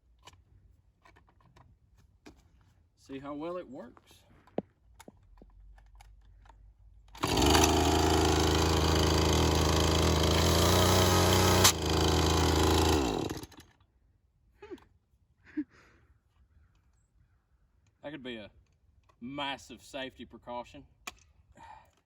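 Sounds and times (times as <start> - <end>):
chainsaw running: 7.2 - 13.8.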